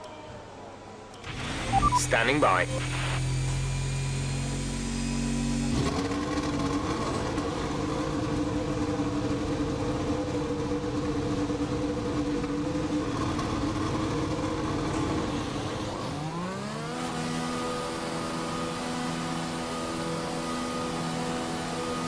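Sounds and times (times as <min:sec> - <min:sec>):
racing car engine running: 0:02.6 - 0:22.0.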